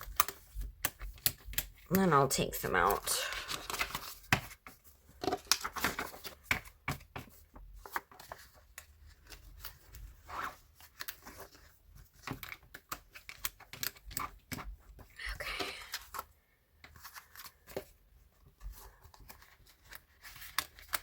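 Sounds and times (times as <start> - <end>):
small plastic clicks and snaps: 0.0 - 1.9, 12.2 - 14.6
paper pages rustling: 2.8 - 21.0.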